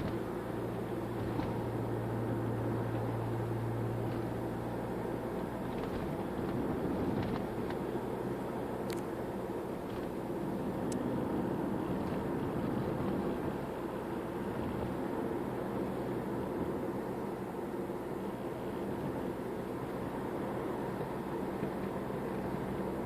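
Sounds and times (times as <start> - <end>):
car engine hum: 0.0 - 23.0
road and tyre rumble: 0.0 - 23.0.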